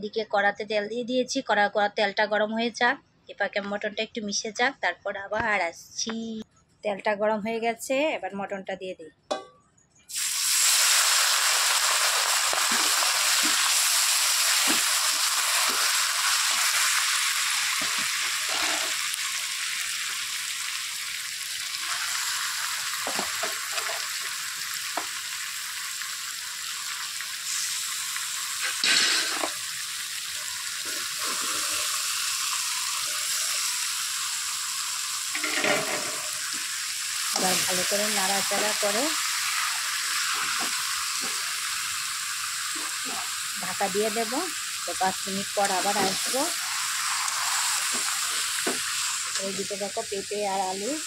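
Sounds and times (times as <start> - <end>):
meat and onions sizzling in oil: 10.1 - 51.0
metal spatula scraping pan: 35.4 - 36.2.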